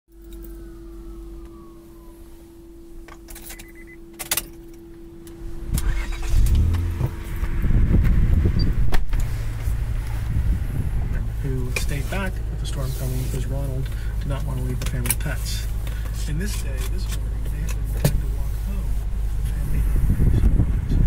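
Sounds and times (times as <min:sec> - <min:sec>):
keys jingling in ignition: 0:00.1 - 0:00.7, 0:03.1 - 0:04.8
steady tone: 0:00.1 - 0:12.5
car engine cranking and idling: 0:00.1 - 0:21.0.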